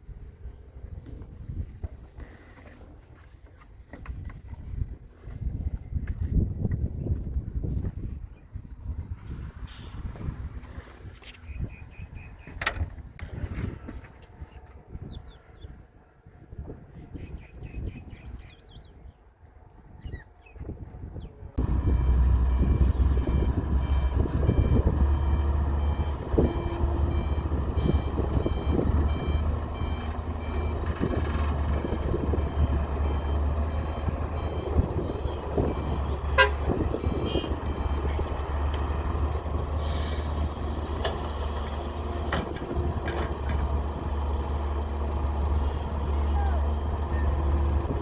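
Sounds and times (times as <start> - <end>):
reversing alarm beeping: 21.6 - 38.7
diesel excavator engine running: 21.6 - 48.0.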